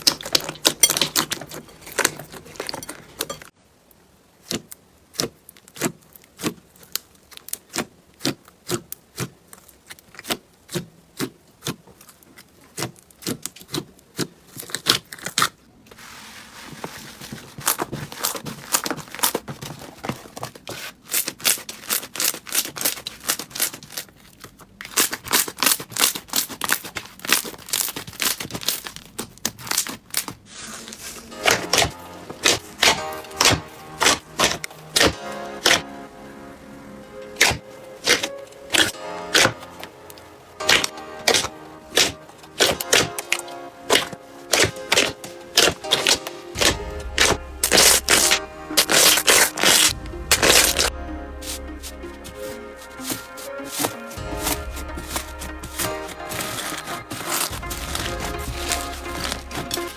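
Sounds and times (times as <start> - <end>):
slime crackling and clicking: 31.4 - 35.8, 37.4 - 50.9.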